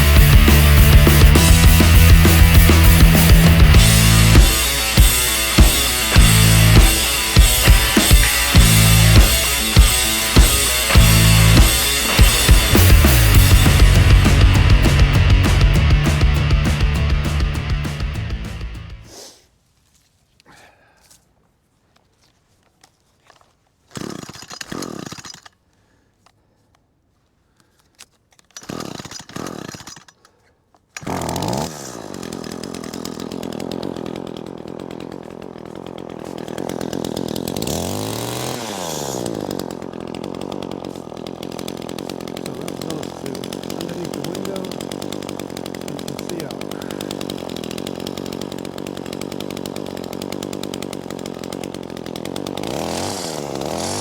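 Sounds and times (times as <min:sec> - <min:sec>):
small two-stroke engine running: 0:00.0 - 0:19.0, 0:31.0 - 0:54.0.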